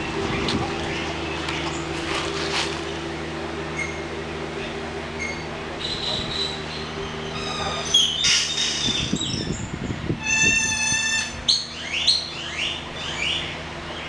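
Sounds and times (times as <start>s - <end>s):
birds chirping and whistling: 0.0s - 2.0s, 3.8s - 14.0s
steady low hum: 0.0s - 14.0s.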